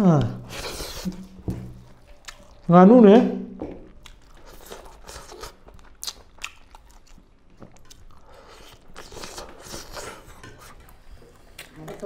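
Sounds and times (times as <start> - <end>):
chewing and biting food: 1.8 - 2.7, 3.8 - 10.1.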